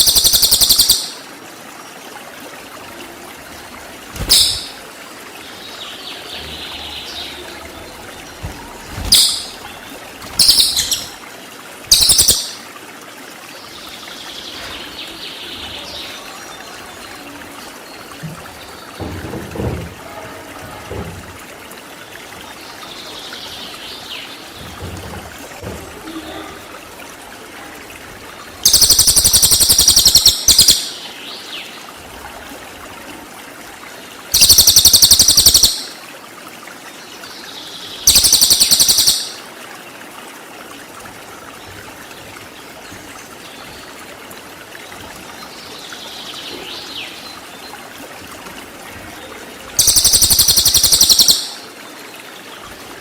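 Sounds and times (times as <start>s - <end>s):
bird high-pitched trills: 0.0s - 1.2s, 4.2s - 4.8s, 9.1s - 9.6s, 10.4s - 11.2s, 11.9s - 12.6s, 28.6s - 31.0s, 34.3s - 36.0s, 38.0s - 39.5s, 49.8s - 51.7s
soft bird calls: 0.0s - 1.2s, 4.2s - 4.8s, 5.4s - 11.3s, 11.9s - 12.7s, 28.6s - 31.8s, 34.3s - 36.0s, 37.4s - 39.5s, 49.1s - 52.9s.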